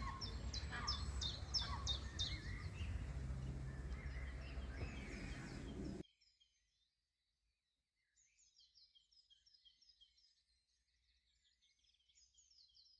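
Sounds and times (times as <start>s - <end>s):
low outdoor rumble: 0.0s - 6.0s
small songbirds calling: 0.0s - 6.4s.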